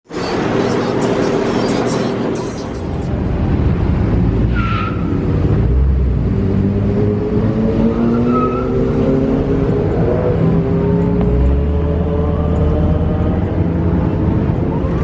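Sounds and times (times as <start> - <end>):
car engine revving: 0.1 - 15.0.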